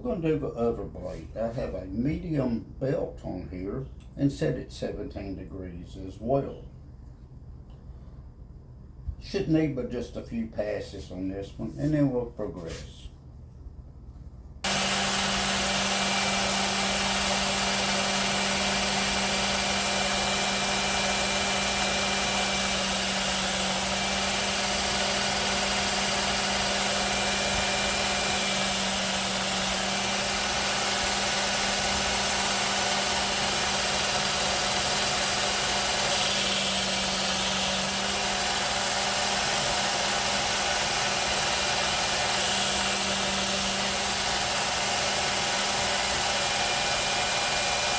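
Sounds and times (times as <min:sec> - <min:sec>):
belt knife sharpener running: 0:14.6 - 0:47.9.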